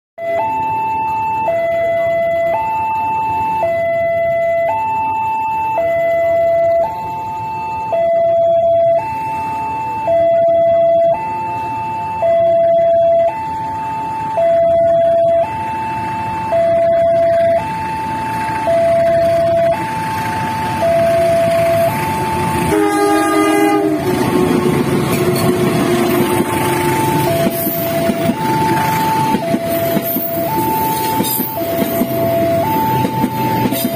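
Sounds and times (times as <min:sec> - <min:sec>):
level crossing two-tone alarm: 0:00.2 - 0:33.9
train running noise: 0:00.6 - 0:33.9
train horn blast: 0:22.6 - 0:27.7.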